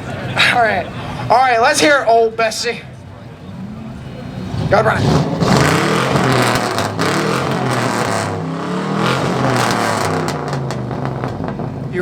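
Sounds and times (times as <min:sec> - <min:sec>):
engine revving loudly: 0:03.7 - 0:11.9
exhaust cracks: 0:04.3 - 0:12.0.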